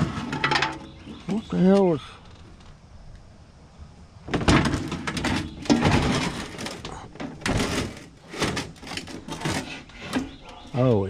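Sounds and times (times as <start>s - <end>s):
knocks clatters and scraping: 0.0s - 1.5s, 4.2s - 10.7s.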